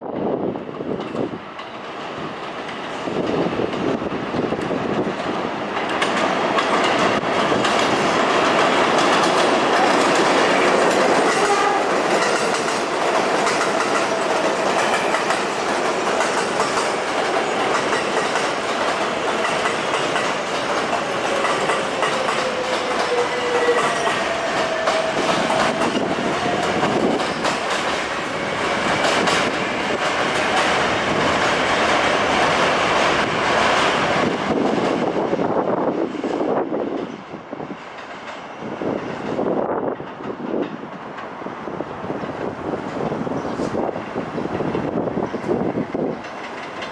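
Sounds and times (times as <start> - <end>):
subway train passing at speed: 0.0 - 46.9
wheels clacking over rail joints: 2.4 - 35.2, 42.3 - 46.9.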